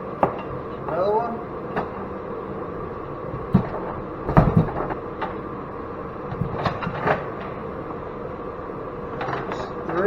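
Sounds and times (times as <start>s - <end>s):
heater humming: 0.0s - 10.0s.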